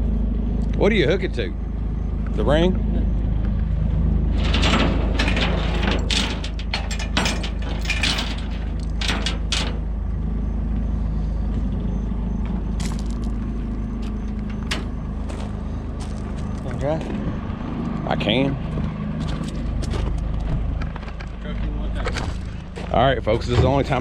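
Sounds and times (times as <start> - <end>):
truck engine idling: 0.0 - 24.0
chain clinking and clanking: 4.3 - 9.9, 13.9 - 16.3.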